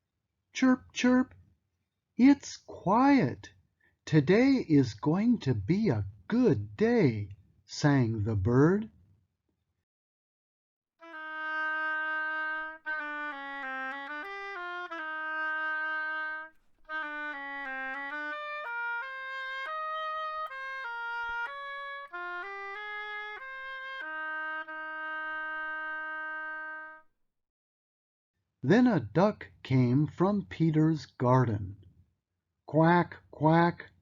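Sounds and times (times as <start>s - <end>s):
solo wind instrument melody: 11.0s - 27.1s.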